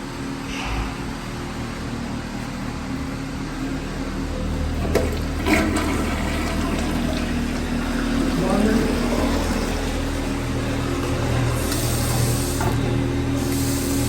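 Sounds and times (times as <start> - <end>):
water running: 4.3 - 14.0.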